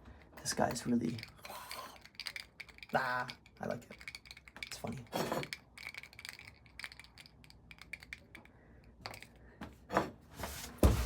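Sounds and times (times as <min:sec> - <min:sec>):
figurines clicking on hard surface: 0:00.2 - 0:09.3.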